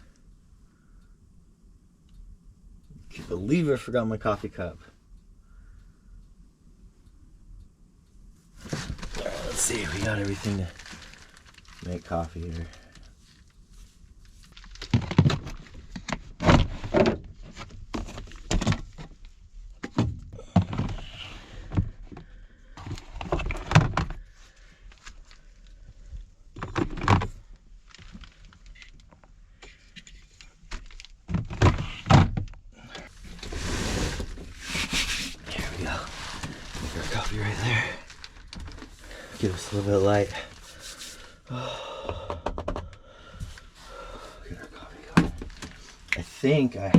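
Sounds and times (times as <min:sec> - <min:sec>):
rustling: 0:08.5 - 0:16.0, 0:33.0 - 0:41.4.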